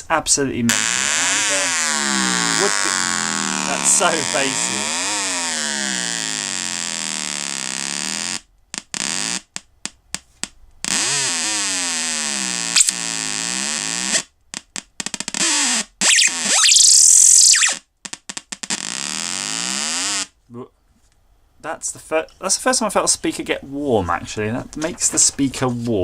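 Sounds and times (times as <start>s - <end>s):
electronic buzz sweeping in pitch: 16.0s - 17.8s.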